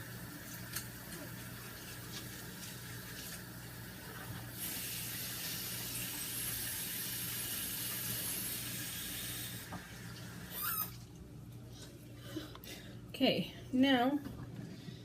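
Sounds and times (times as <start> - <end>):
hands washing: 0.0 - 11.2
tap running: 9.6 - 10.3
wavering squeak: 10.5 - 11.0.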